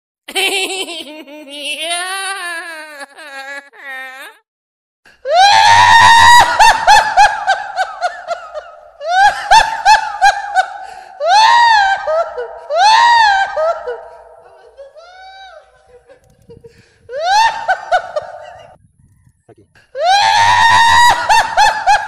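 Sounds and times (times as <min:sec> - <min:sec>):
high-pitched laughing voice: 0:00.3 - 0:04.4.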